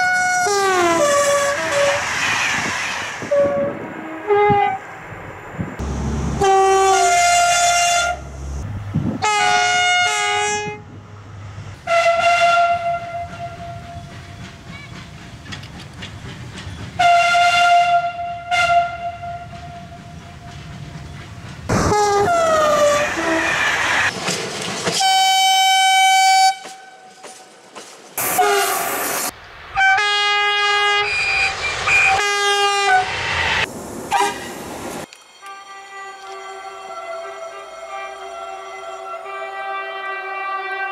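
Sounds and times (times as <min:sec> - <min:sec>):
train rumbling on rails: 0:00.0 - 0:39.8
train horn blasts: 0:03.3 - 0:04.8, 0:05.8 - 0:08.6, 0:09.2 - 0:11.0, 0:11.8 - 0:14.1, 0:17.0 - 0:20.1, 0:25.0 - 0:27.2, 0:28.2 - 0:28.9, 0:29.8 - 0:33.2, 0:34.1 - 0:34.5, 0:35.4 - 0:40.9.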